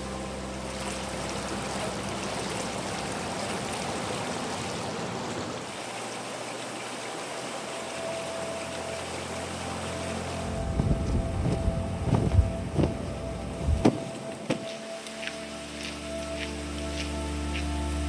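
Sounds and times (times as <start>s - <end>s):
flowing splashing water: 0.0s - 18.0s.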